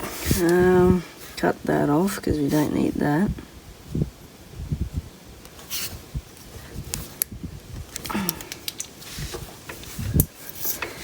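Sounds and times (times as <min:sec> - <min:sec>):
hand tools clicking: 0:07.9 - 0:09.0.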